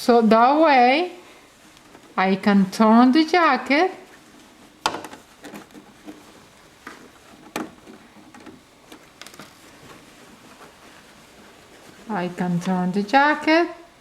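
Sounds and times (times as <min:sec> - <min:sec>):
fabric rustling: 0:00.0 - 0:14.0.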